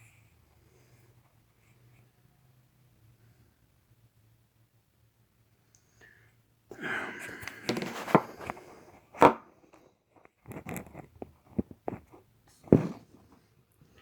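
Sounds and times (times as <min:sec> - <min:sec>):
handling rustling and scraping: 0:07.4 - 0:14.0.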